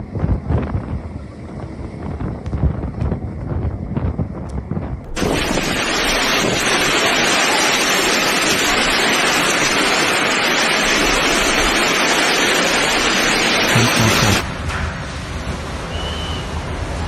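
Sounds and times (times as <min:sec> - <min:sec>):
hail and rain pelting down: 0:05.1 - 0:14.4.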